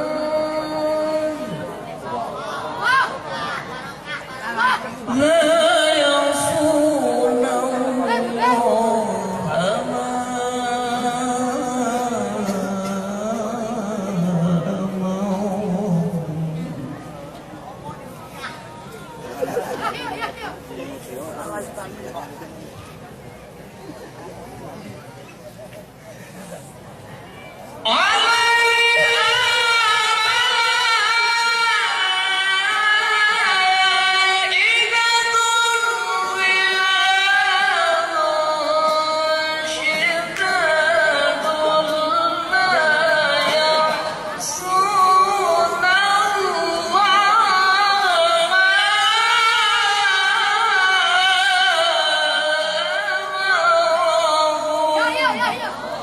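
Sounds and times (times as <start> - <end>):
person reciting melodically: 0.0 - 2.7, 4.6 - 17.2, 27.8 - 56.0.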